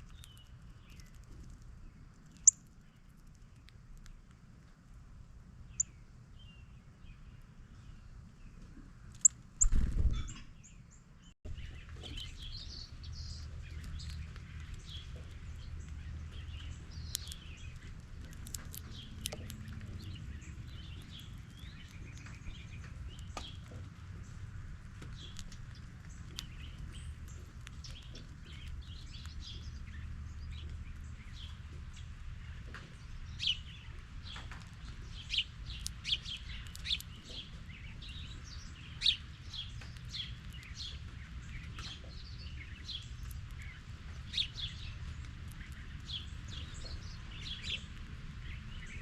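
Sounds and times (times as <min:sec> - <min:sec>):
songbirds chirping: 0:00.0 - 0:49.0
steady low rumble: 0:11.5 - 0:49.0.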